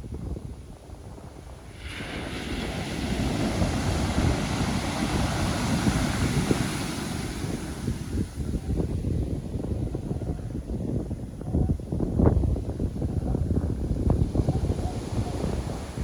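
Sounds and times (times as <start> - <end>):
wind rumble on microphone: 0.0 - 16.0
wave breaking and washing in: 0.9 - 9.2.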